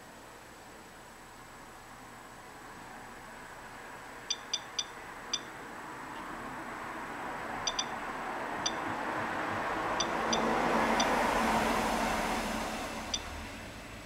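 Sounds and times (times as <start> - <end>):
dosimeter detection ticks: 4.3 - 5.6, 7.6 - 8.0, 8.6 - 8.9, 10.0 - 11.2, 13.1 - 13.3.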